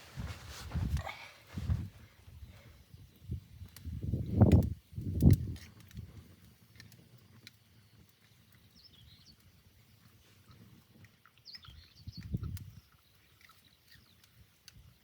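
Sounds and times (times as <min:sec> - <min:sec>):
faint bird chirps: 0:11.4 - 0:14.3.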